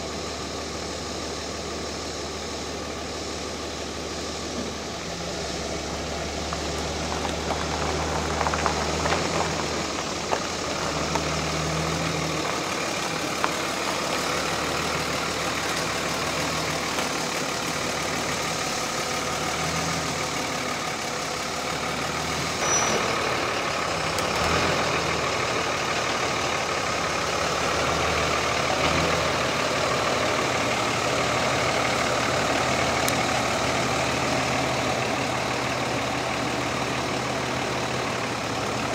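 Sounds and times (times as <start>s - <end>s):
pickup truck engine idling: 0.0s - 38.9s.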